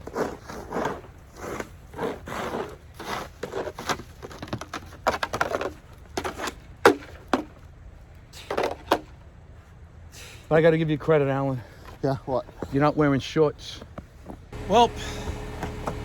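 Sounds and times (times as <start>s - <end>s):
snow shovel scraping snow: 0.0s - 4.3s, 14.6s - 16.0s.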